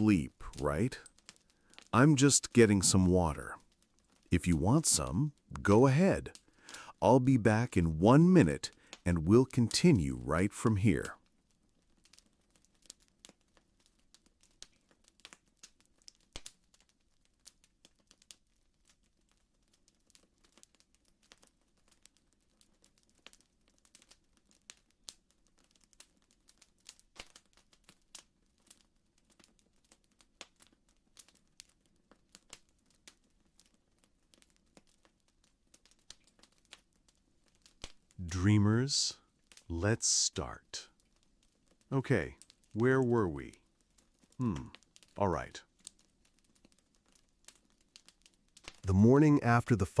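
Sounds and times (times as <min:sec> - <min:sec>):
wood fire crackling: 0:00.0 - 0:50.0.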